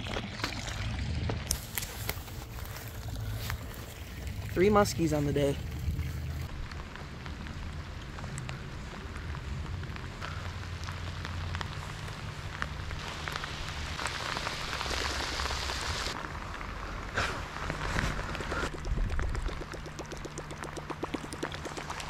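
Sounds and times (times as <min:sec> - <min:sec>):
heavy rain on a lake: 0:06.1 - 0:22.0.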